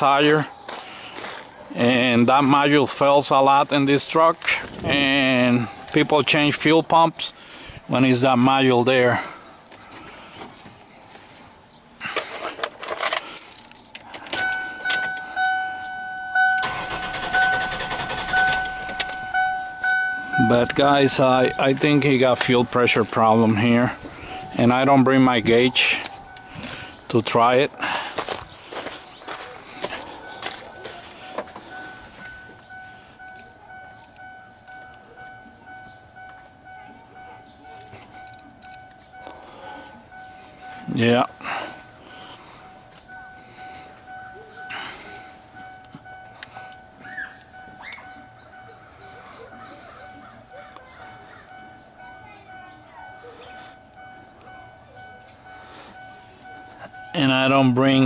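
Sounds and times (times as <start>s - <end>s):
keys rattling: 12.0s - 15.6s, 16.2s - 21.8s, 27.8s - 35.5s, 37.3s - 39.6s
car engine cranking and starting: 12.0s - 58.0s
car warning chime pulsing: 14.3s - 28.0s, 29.2s - 58.0s.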